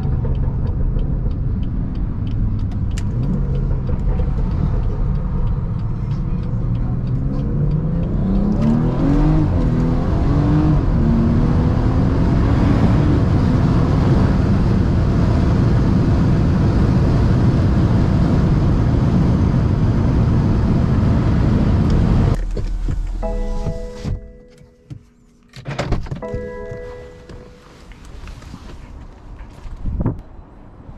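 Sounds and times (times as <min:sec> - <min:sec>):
car engine accelerating hard: 0:00.0 - 0:24.2.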